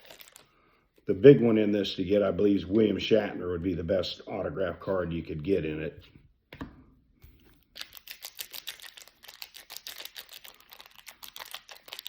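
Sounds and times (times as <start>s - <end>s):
cards clicking and rustling: 7.5s - 12.0s.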